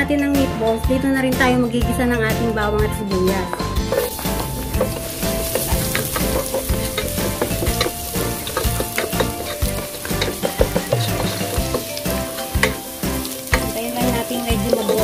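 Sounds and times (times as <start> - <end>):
garlic and onion sizzling in oil: 2.6 - 15.0
utensil scraping pan: 3.8 - 15.0.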